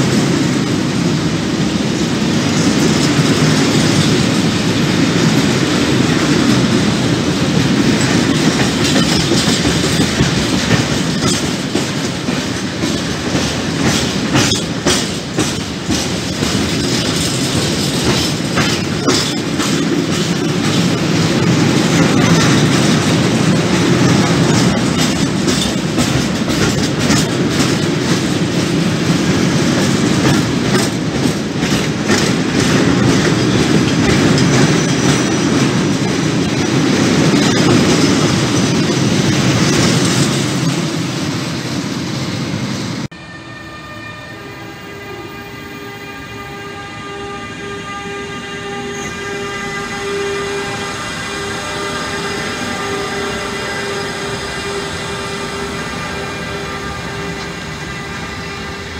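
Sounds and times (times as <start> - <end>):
electric locomotive humming: 0.0 - 58.9
freight train wagons rolling past: 0.0 - 58.9
wheels clicking over rail joints: 5.2 - 40.8.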